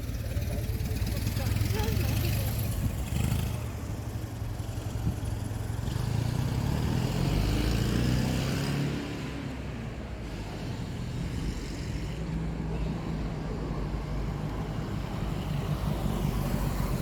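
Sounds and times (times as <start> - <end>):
motor vehicle passing by: 0.0 - 13.4.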